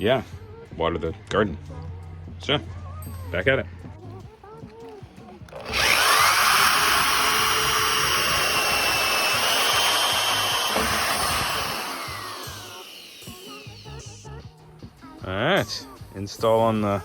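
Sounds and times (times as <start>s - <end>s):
power drill with hole saw: 5.5s - 14.3s.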